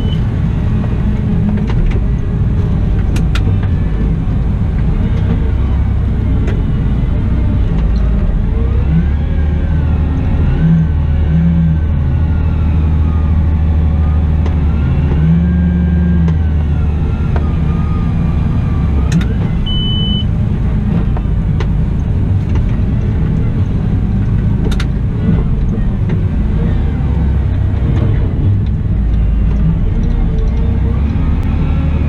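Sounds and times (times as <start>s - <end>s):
drivetrain whine: 0.0s - 32.0s
wheel loader engine hum: 0.0s - 32.0s
click: 19.1s - 19.5s, 24.3s - 24.9s
short high beep: 19.7s - 20.3s.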